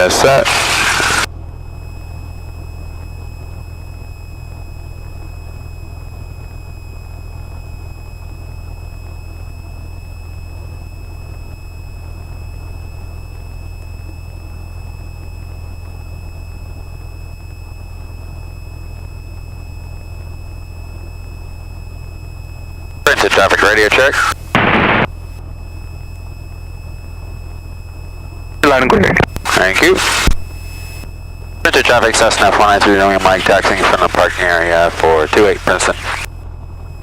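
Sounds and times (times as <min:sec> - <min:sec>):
high-pitched whine: 0:00.0 - 0:37.0
piston aircraft engine idling: 0:00.0 - 0:37.0.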